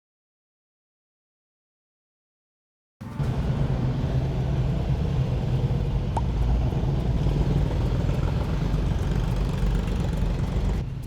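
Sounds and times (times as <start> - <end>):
engine rumble and hum: 3.0 - 11.0.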